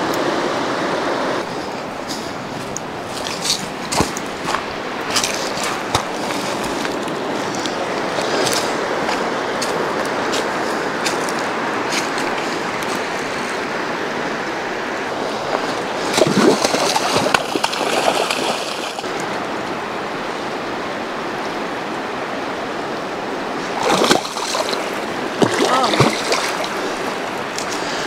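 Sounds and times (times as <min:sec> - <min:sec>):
river current flowing: 0:00.0 - 0:28.0.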